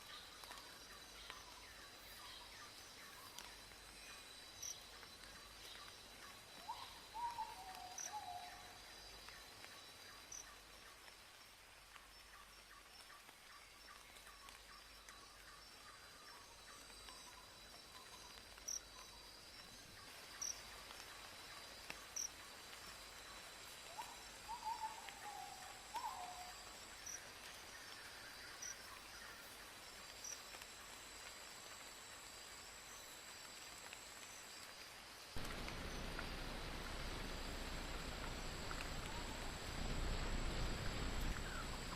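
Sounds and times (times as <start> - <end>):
insects trilling: 0.0 - 41.9
loud even hiss: 35.4 - 41.9.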